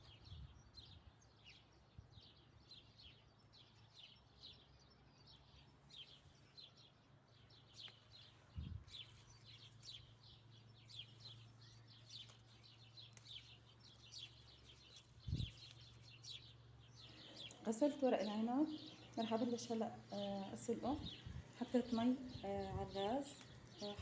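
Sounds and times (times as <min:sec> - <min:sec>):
small birds chirping: 0:00.0 - 0:24.0
low steady hum: 0:04.8 - 0:24.0.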